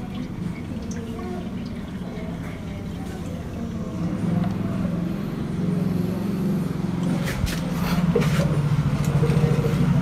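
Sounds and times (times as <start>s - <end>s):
car engine idling: 7.8s - 10.0s.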